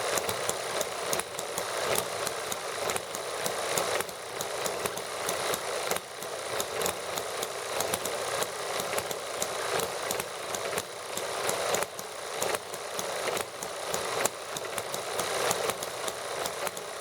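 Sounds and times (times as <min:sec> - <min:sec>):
small model engines running: 0:00.0 - 0:17.0.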